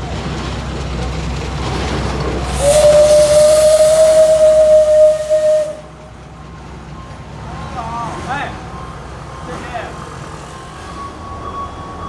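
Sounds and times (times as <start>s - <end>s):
hiss of steam: 2.3s - 6.2s
steam whistle blast: 2.4s - 6.2s.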